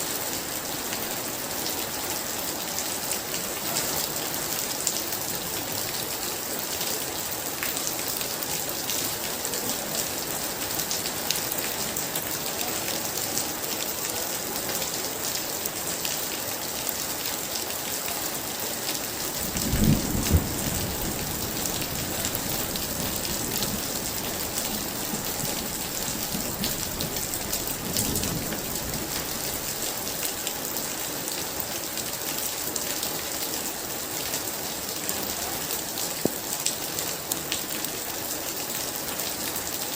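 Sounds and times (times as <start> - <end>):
heavy rain pouring: 0.0 - 39.9
thunder rumbling: 19.3 - 29.6.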